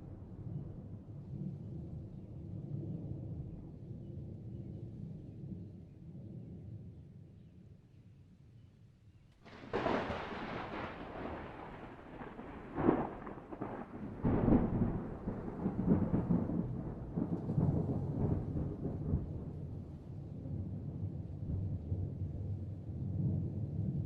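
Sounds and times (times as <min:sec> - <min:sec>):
thunder clap and cracks: 0:09.4 - 0:19.5
thunder rolling rumble: 0:09.4 - 0:24.0.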